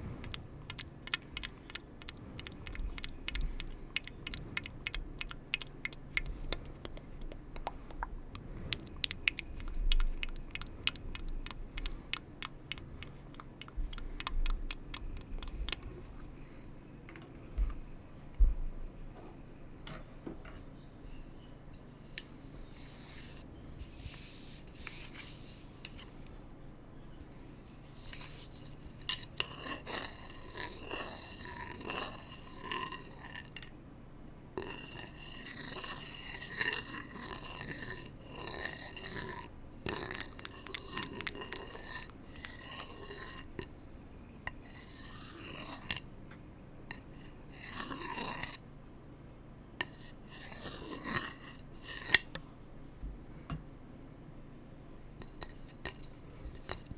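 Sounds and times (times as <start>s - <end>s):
scraping and rubbing on hard objects: 21.8s - 26.2s, 27.3s - 33.7s, 34.6s - 43.6s, 44.6s - 46.0s, 46.9s - 48.6s, 49.8s - 52.4s.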